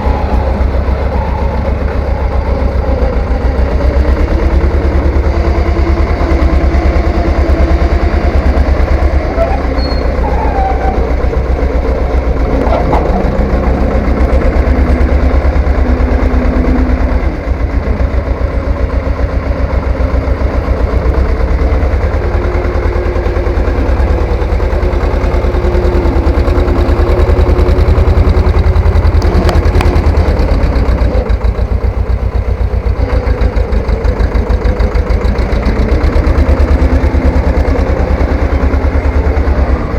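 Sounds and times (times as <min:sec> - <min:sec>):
tractor engine pulsing: 0:00.0 - 0:39.9.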